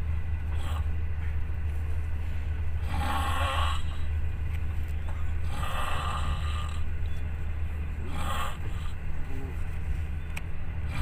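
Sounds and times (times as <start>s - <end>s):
train rumble inside carriage: 0.0s - 11.0s.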